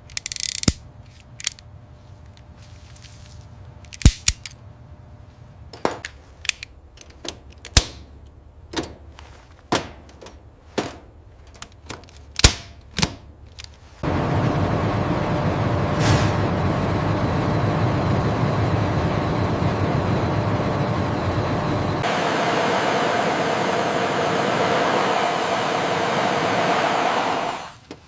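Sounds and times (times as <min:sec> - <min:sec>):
low steady hum: 0:00.0 - 0:27.7
loud continuous rumbling: 0:14.0 - 0:27.7.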